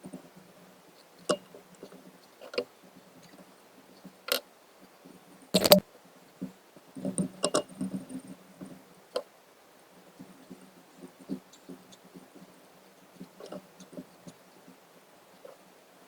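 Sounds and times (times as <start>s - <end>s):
objects being handled clicking: 5.6s - 5.8s
sharp click: 5.6s - 5.8s.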